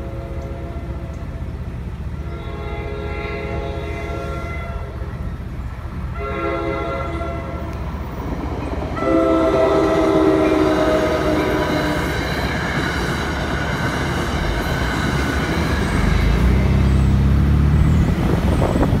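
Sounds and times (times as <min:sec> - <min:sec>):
train horn blast: 0:00.0 - 0:01.2, 0:02.2 - 0:05.2, 0:06.1 - 0:07.8, 0:09.0 - 0:12.4
train passing: 0:00.0 - 0:19.0
deep diesel engine hum: 0:15.9 - 0:19.0.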